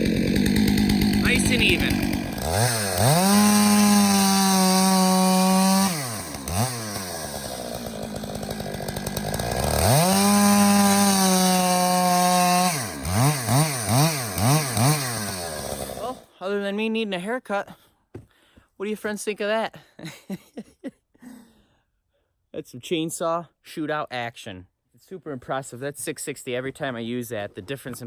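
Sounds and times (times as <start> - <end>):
chainsaw engine revving: 0.0 - 16.3.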